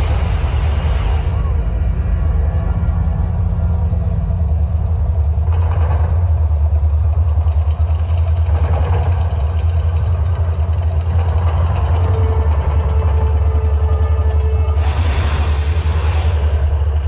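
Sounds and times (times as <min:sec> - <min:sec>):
rough hissing: 0:00.0 - 0:01.4, 0:14.6 - 0:16.7
deep rumble: 0:00.0 - 0:17.0.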